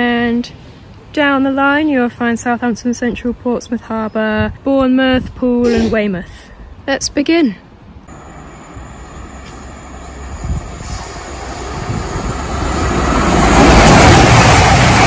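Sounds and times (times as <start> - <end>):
train approaching: 8.1 - 15.0.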